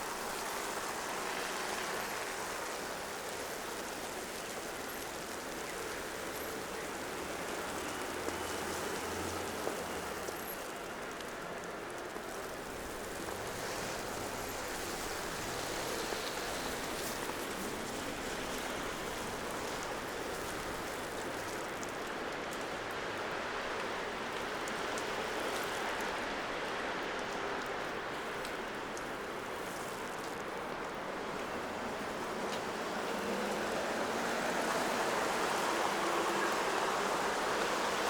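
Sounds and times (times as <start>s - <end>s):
wet street hiss: 0.0s - 38.0s.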